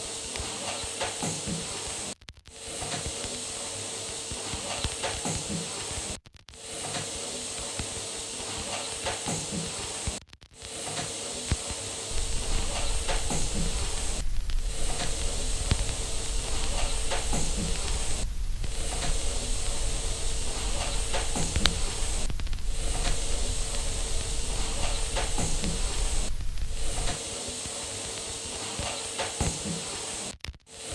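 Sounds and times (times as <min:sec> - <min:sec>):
faint steady whine: 0:10.7 - 0:30.9
white noise hiss: 0:10.7 - 0:30.9
low rumble: 0:12.1 - 0:27.2.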